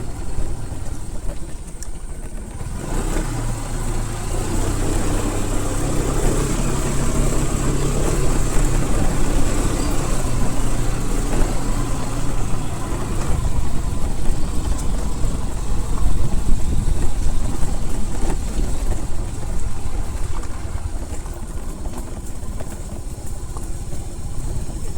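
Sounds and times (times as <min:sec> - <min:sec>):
vehicle engine rumbling: 0:00.0 - 0:24.9.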